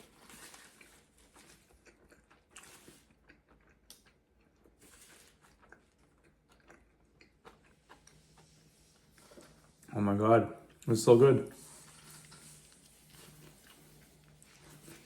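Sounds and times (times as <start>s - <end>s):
faint biting and chewing: 0.0s - 9.9s.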